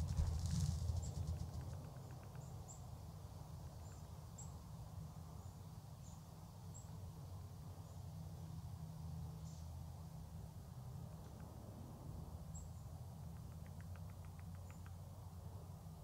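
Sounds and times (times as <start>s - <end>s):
grouse wingbeats drumming: 0.0s - 2.4s
small bird chirping: 0.0s - 4.7s, 12.4s - 15.2s
low steady rumble: 0.0s - 5.5s.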